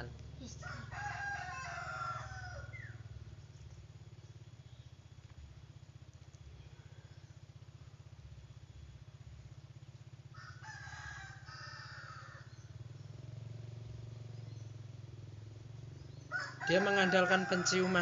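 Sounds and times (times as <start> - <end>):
steady low hum: 0.0 - 18.0
rooster crowing: 0.6 - 3.1, 10.3 - 12.7, 16.3 - 18.0.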